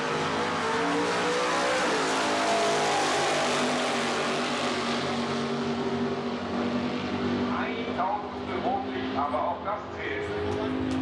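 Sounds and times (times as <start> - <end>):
drag car accelerating: 0.0 - 11.0.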